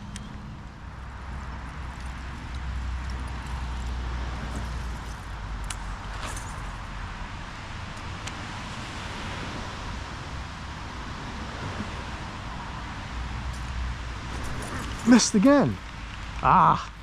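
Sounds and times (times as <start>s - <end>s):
creek rushing: 14.1s - 16.9s.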